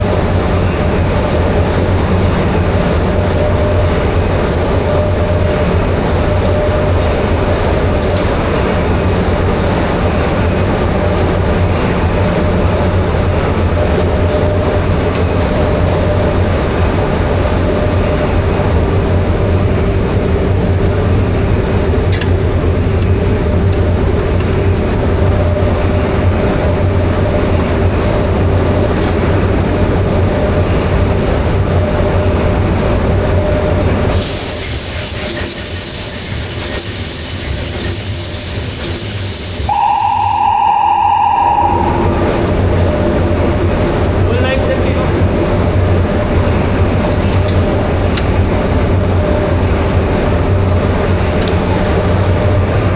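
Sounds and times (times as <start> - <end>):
steady hum: 29.9 - 44.3
loud hiss: 34.1 - 40.9
high whine: 34.1 - 44.3.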